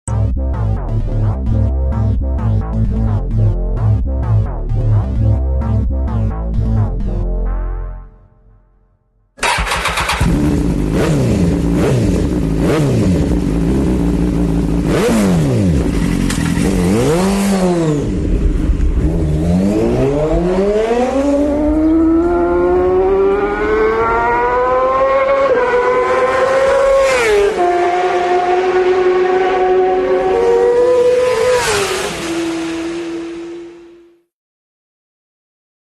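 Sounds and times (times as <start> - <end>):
racing motorcycle engine revving: 9.4 - 34.0.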